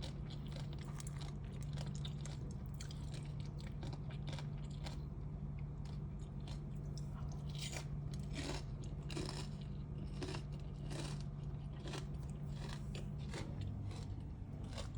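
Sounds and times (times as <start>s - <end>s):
crunchy chewing of salad: 0.0s - 14.9s
steady low hum: 0.0s - 14.9s.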